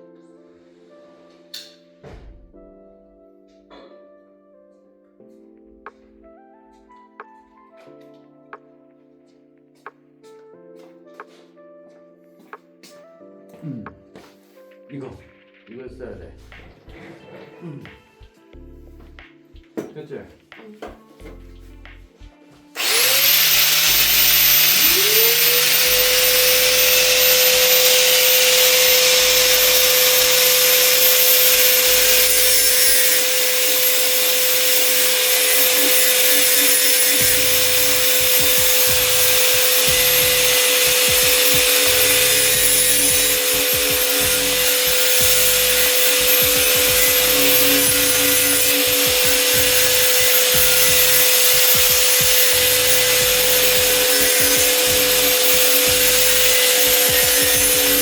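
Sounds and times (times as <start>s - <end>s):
abrasive grinding metal: 22.8s - 58.0s
power tool motor whine: 22.8s - 58.0s.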